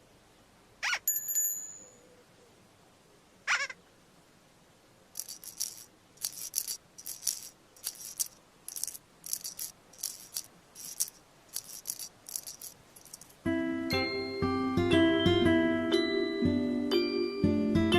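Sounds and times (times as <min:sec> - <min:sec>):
glockenspiel tune: 0:01.1 - 0:02.0, 0:13.5 - 0:17.9
shaker rattling: 0:05.1 - 0:13.5.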